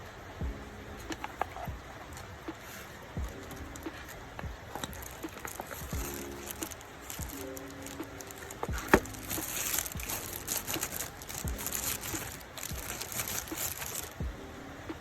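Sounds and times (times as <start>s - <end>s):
packaging crinkling: 3.4s - 14.2s.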